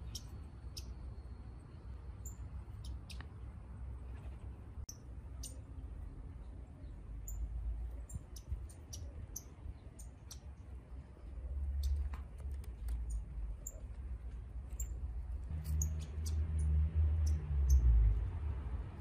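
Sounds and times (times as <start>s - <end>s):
small bird chip notes: 0.0s - 1.6s.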